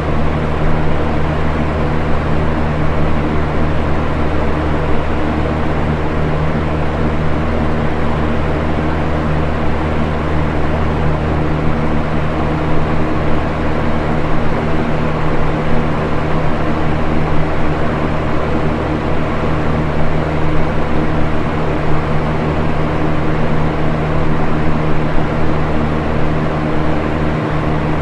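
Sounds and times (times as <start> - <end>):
fan air rushing: 0.0 - 28.0
low motor hum: 0.0 - 28.0.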